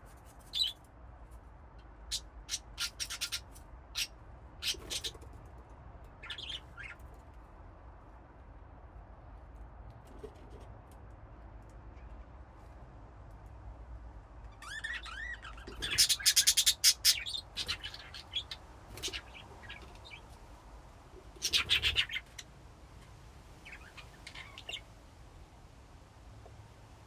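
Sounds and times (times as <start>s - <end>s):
budgies chirping and warbling: 2.5s - 5.2s, 6.2s - 7.0s, 14.6s - 20.3s, 21.4s - 22.4s, 23.6s - 24.9s.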